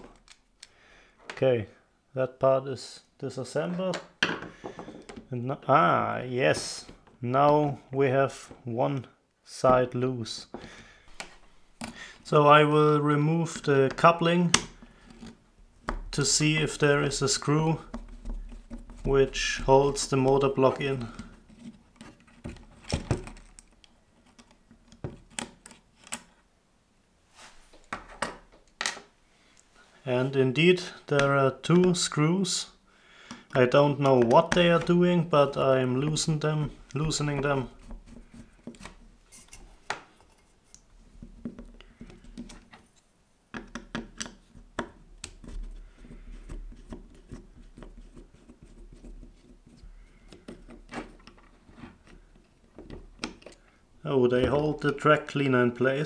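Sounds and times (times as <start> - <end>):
plastic and metal parts handled: 17.8 - 26.4, 33.4 - 53.7.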